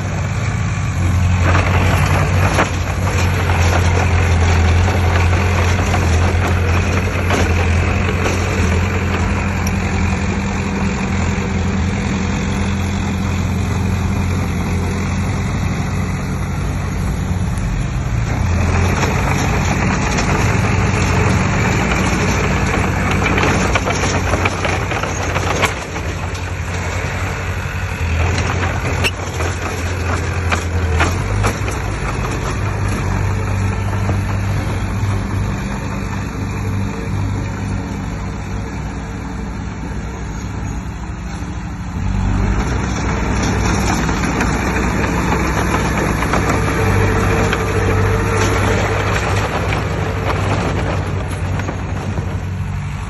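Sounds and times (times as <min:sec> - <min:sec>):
heavy machinery diesel engine: 0:00.0 - 0:53.0
rough clattering: 0:01.0 - 0:15.1, 0:18.1 - 0:37.7, 0:42.3 - 0:53.0
scattered knocks: 0:28.1 - 0:35.5, 0:43.1 - 0:52.7.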